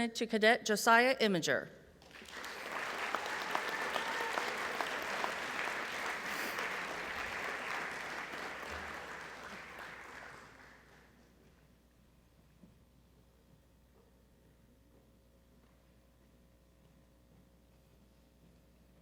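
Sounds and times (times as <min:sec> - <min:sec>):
audience applauding: 0:02.0 - 0:11.1.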